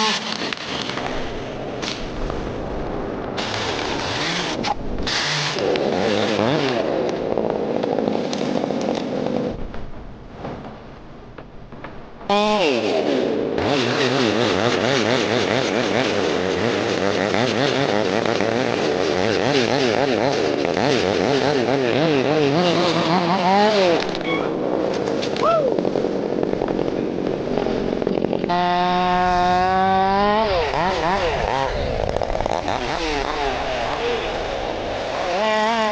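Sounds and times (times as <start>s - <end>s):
chainsaw cutting wood: 0.0s - 1.2s, 3.4s - 9.2s, 12.3s - 24.2s, 26.4s - 35.9s.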